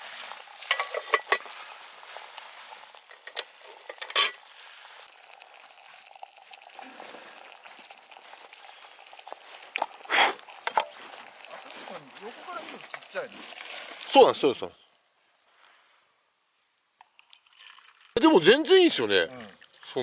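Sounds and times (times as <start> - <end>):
faint simmering hiss: 0.0 - 20.0
metal cookware clinking: 0.6 - 1.5, 3.1 - 4.4.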